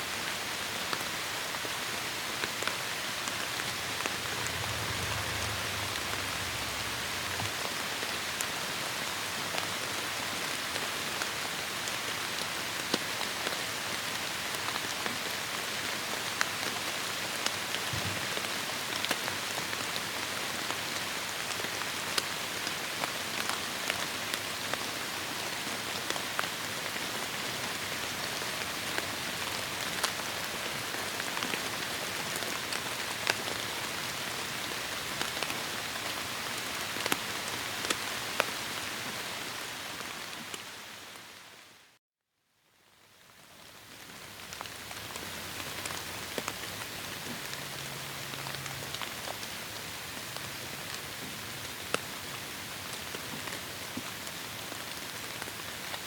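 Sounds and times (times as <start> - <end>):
heavy rain falling: 0.2 - 41.7.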